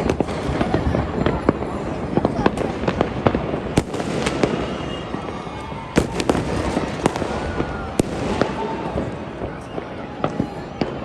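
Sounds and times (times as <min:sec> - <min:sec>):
distant fireworks rumbling: 0:00.0 - 0:11.0
firecracker cracks: 0:00.0 - 0:11.0.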